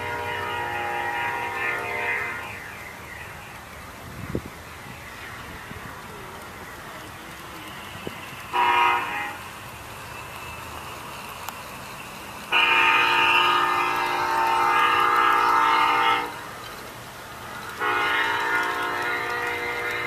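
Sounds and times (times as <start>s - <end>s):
multi-tone train horn blasts: 0.0s - 2.7s, 8.5s - 9.4s, 12.5s - 16.5s, 17.7s - 20.0s.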